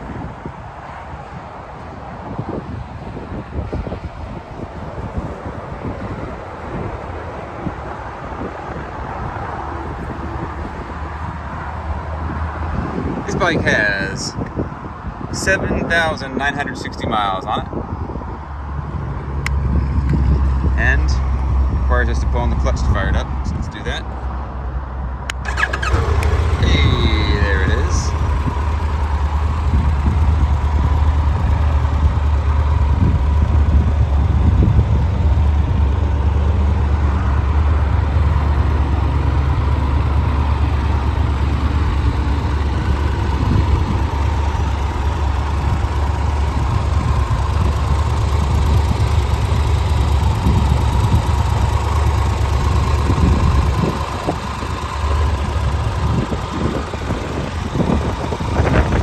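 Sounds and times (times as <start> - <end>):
motorcycle engine idling: 25.3 - 59.0.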